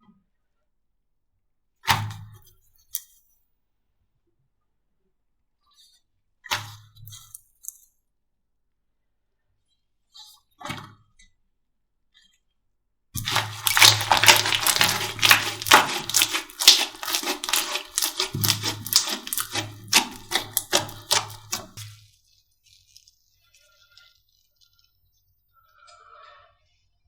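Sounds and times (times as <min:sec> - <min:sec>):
slime squeezed sticky clicks: 0:13.2 - 0:21.9.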